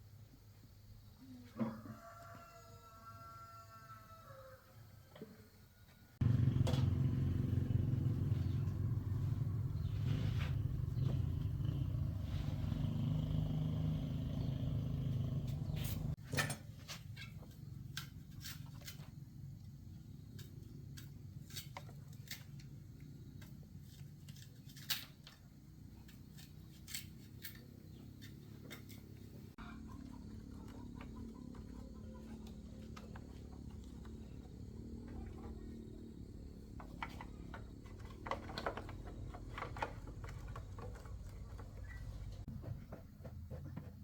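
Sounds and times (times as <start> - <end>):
motorcycle engine running: 6.2 - 16.2.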